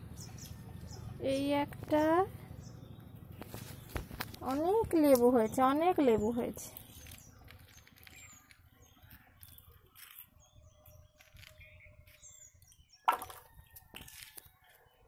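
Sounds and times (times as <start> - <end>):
knock or phone handling: 13.1 - 13.5.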